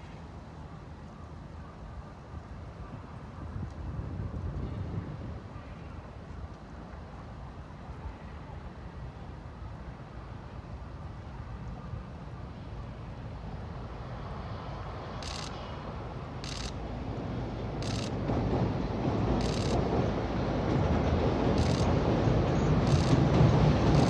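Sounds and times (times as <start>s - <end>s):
freight train rumble: 12.6s - 24.0s.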